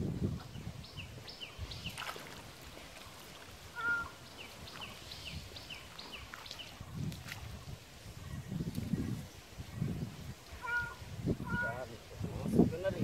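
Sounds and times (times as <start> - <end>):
birds chirping quickly: 0.4 - 9.9.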